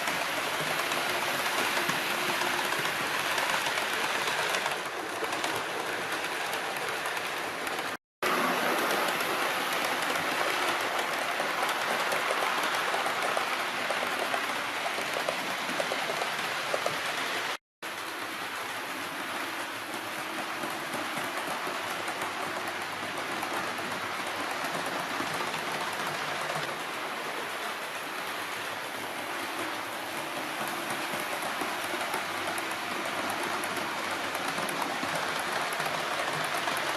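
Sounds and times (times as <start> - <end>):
model train wheels on rails: 0.0 - 36.9.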